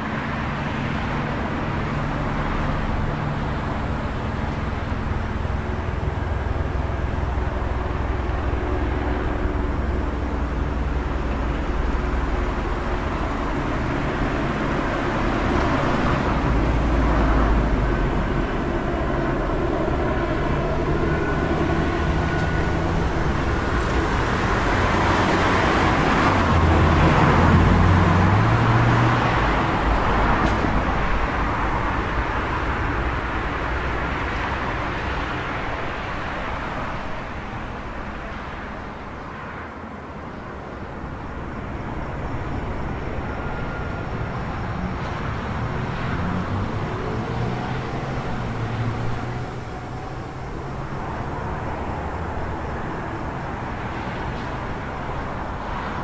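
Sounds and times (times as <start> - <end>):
vehicle passing: 0.0 - 37.5
engine passing: 0.0 - 39.1, 40.0 - 56.0
road traffic: 0.0 - 56.0.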